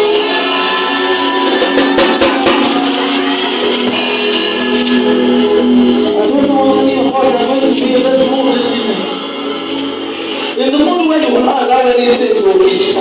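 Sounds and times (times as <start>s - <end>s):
drum hits: 0.0s - 9.2s
live worship band music: 0.0s - 13.0s.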